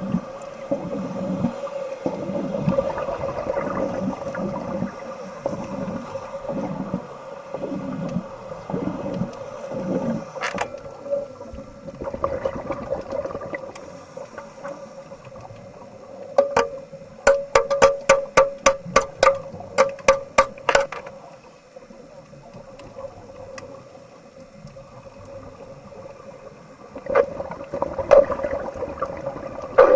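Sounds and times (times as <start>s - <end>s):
underwater bubbling: 0.0s - 29.9s.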